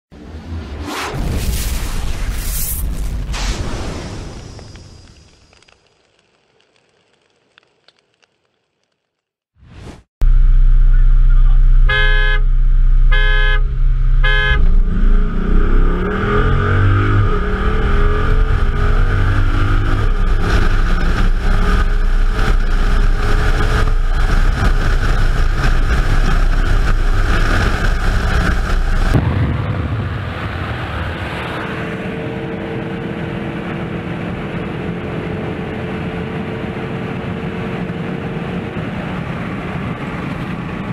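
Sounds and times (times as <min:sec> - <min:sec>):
engine and road drone: 0:00.1 - 0:04.0, 0:10.2 - 0:40.9
car engine accelerating: 0:10.2 - 0:40.9
car horn honks: 0:11.8 - 0:14.7.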